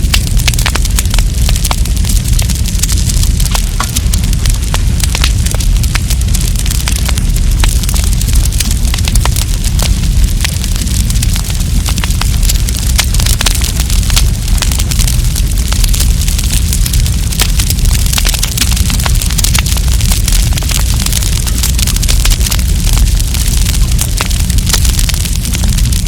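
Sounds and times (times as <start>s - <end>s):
campfire crackling and popping: 0.0s - 26.0s
low fire rumble: 0.0s - 26.0s.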